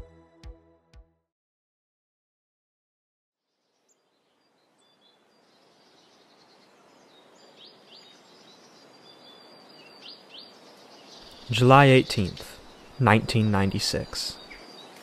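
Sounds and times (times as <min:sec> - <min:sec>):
soft outdoor hiss: 0:03.4 - 0:15.0
birds chirping: 0:03.7 - 0:15.0.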